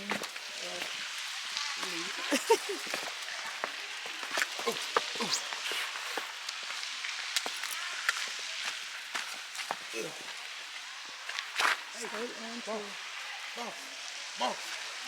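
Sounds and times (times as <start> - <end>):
footsteps on rocky trail: 0.0 - 10.4
running water rushing: 0.0 - 15.0.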